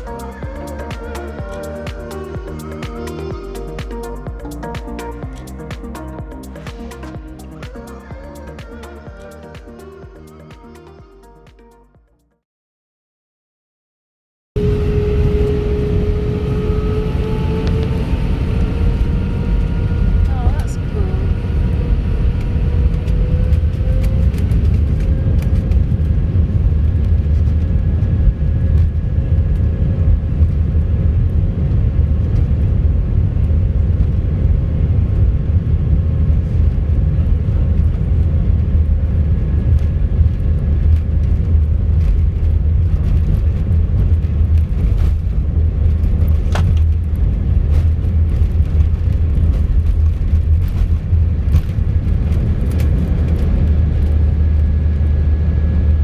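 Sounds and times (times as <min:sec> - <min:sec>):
jet engine rumble and whine: 0:14.6 - 0:56.0.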